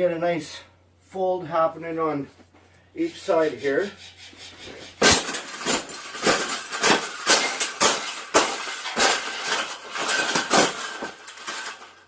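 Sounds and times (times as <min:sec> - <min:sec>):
wire cage clanking and crunching: 0:04.8 - 0:12.0.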